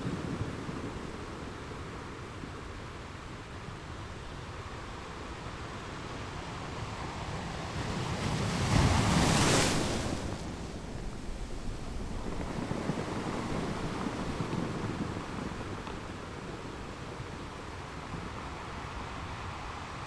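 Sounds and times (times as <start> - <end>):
surf washing: 0.0 - 20.0
wave breaking on beach: 7.4 - 20.0.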